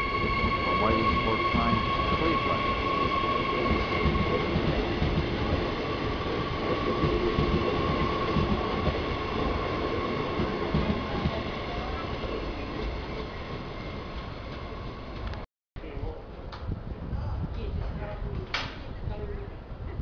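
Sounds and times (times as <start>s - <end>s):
train wheels rumbling: 0.0s - 15.4s
high train whine: 0.0s - 17.1s.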